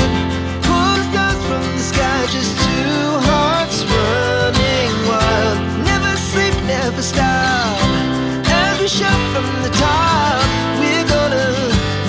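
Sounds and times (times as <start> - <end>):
pop song with guitar and singing: 0.0 - 12.0.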